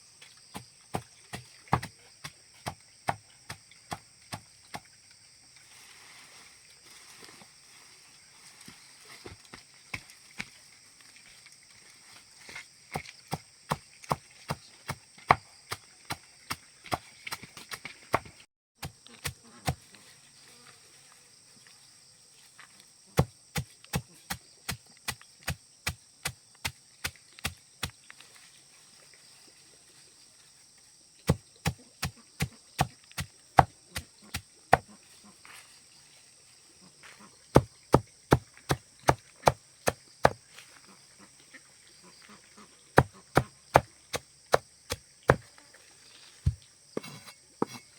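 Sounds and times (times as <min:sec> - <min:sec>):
sharp chopping strokes: 0:00.6 - 0:01.9, 0:31.3 - 0:34.9, 0:37.6 - 0:40.4, 0:43.0 - 0:45.4
insects buzzing: 0:18.2 - 0:47.9.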